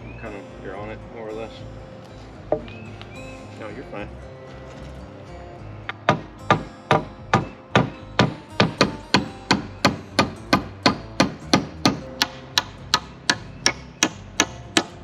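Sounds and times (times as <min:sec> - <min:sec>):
hammer striking: 0:05.9 - 0:15.0.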